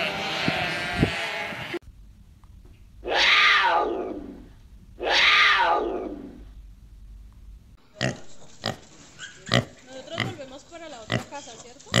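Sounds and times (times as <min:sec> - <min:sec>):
leopard calling: 0:03.0 - 0:06.5.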